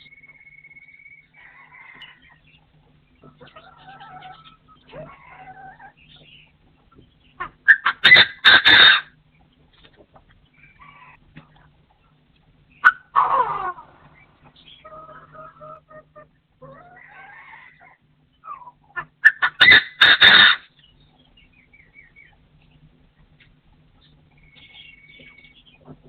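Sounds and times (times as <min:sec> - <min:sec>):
partridge whistles and chirps: 0:00.0 - 0:02.6, 0:24.0 - 0:25.9
partridge harsh calls: 0:07.2 - 0:09.2, 0:12.7 - 0:22.4.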